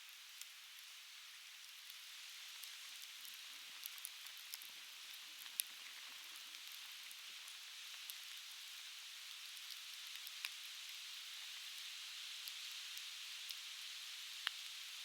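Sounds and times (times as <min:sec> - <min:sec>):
campfire crackling and popping: 0:01.6 - 0:08.6, 0:09.2 - 0:11.0.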